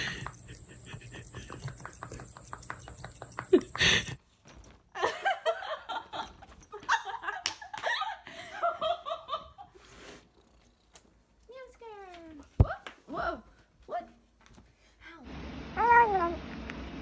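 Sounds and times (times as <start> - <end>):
people laughing: 0.0 - 4.2.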